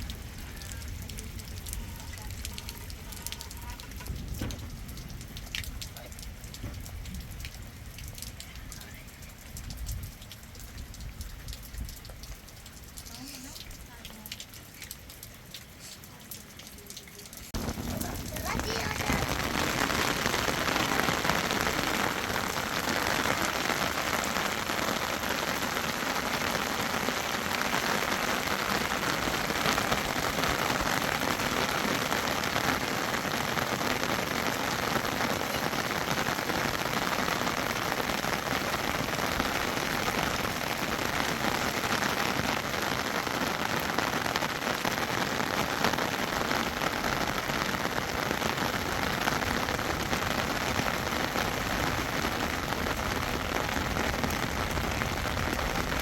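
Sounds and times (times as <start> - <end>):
rain pattering on surfaces: 0.0 - 56.0.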